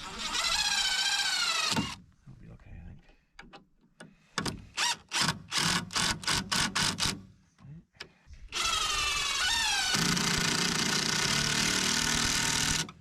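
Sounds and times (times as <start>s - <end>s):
cordless drill driving screw: 0.0s - 2.0s, 4.5s - 7.2s, 8.5s - 13.0s.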